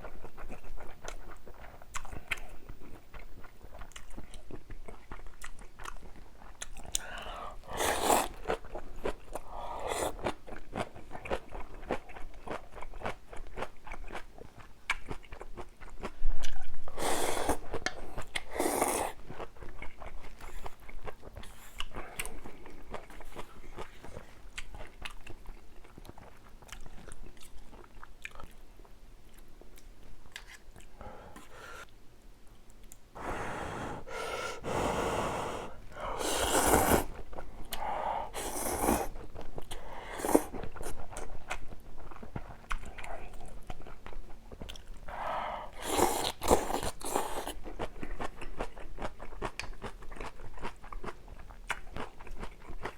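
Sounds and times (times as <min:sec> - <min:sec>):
chewing with wet clicks: 0:00.0 - 0:07.3, 0:10.2 - 0:16.8, 0:19.2 - 0:31.5, 0:32.6 - 0:33.1, 0:39.2 - 0:45.1, 0:45.9 - 0:52.9
slurping noodles: 0:07.6 - 0:08.6, 0:09.6 - 0:10.3, 0:16.9 - 0:17.8, 0:18.4 - 0:19.2, 0:33.2 - 0:37.2, 0:37.8 - 0:41.0, 0:45.1 - 0:47.6.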